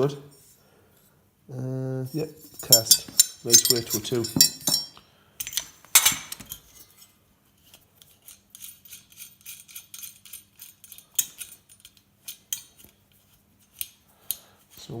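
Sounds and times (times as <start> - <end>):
metal parts clinking: 2.4 - 14.0.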